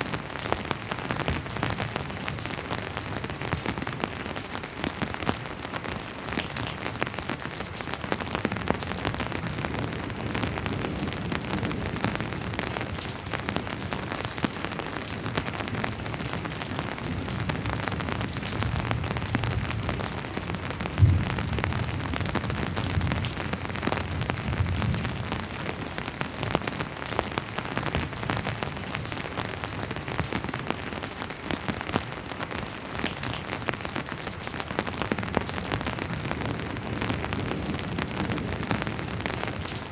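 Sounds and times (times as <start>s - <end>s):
rain drops striking surface: 0.0s - 39.9s
distant thunder rumble: 18.7s - 25.2s.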